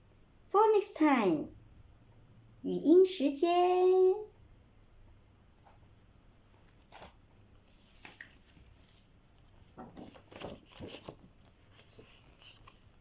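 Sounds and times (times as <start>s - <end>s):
rustling and small knocks: 6.5s - 13.0s.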